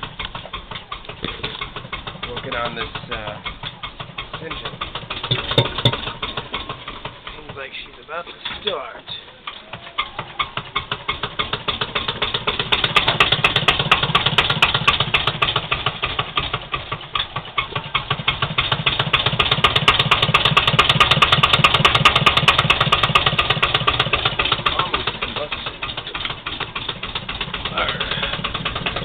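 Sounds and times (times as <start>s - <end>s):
engine starting and idling: 0.0s - 29.0s.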